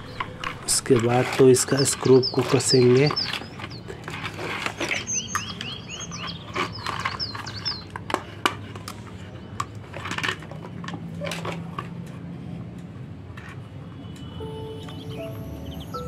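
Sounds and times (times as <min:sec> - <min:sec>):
small birds chirping: 0:00.0 - 0:08.4, 0:14.5 - 0:16.0.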